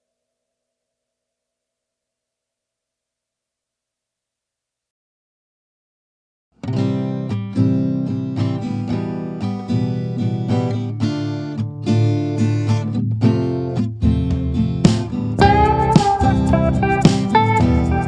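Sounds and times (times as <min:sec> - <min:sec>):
acoustic guitar music: 0:06.6 - 0:18.0.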